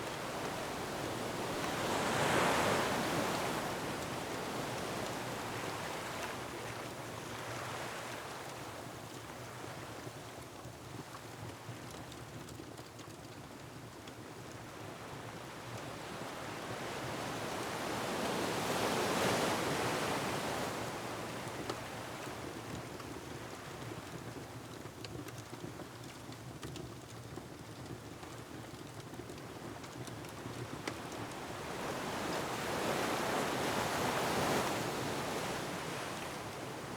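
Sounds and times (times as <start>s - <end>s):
surf on rocky shore: 0.0s - 6.6s, 16.8s - 21.0s, 30.7s - 36.9s
wind: 0.0s - 36.9s.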